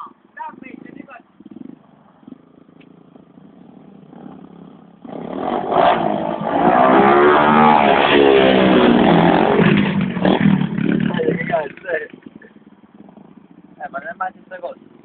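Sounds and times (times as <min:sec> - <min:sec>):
motocross bike engine revving: 0:00.0 - 0:15.0.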